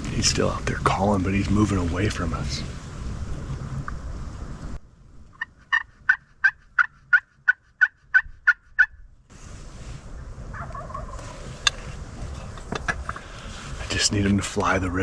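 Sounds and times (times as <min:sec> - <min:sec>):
turkey yelps: 0:05.4 - 0:09.0, 0:10.5 - 0:11.4.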